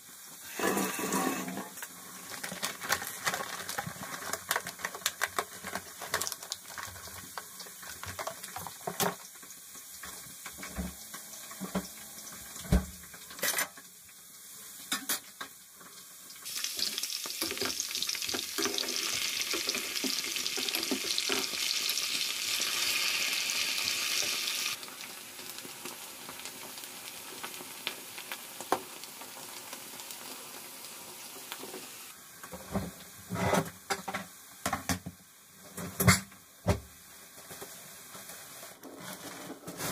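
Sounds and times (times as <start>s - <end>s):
steady hiss: 16.0s - 33.3s.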